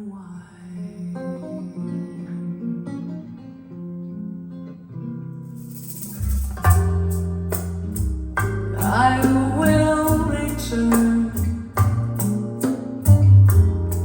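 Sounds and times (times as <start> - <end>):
plucked guitar: 0.6 - 14.0
jazz through loudspeakers: 5.9 - 14.0
deep bass notes: 6.2 - 14.0.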